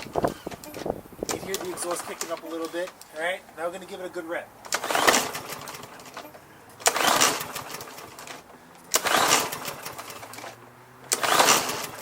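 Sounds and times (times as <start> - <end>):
lawn mower recoil starter cranking: 0.0 - 3.2, 4.6 - 12.0.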